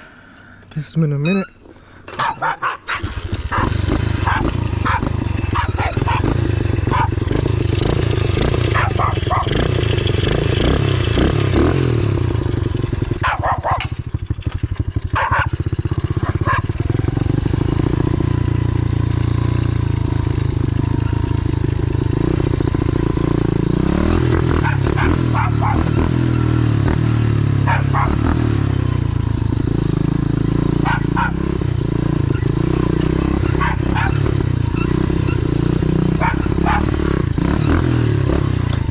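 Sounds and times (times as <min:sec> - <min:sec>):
dog barking: 0:02.1 - 0:07.2, 0:08.7 - 0:09.6, 0:13.2 - 0:13.9, 0:15.2 - 0:15.6, 0:16.2 - 0:16.8, 0:24.6 - 0:26.0, 0:27.7 - 0:28.3, 0:30.8 - 0:31.4, 0:33.4 - 0:34.3, 0:36.2 - 0:37.0
motorbike engine revving: 0:02.1 - 0:38.9.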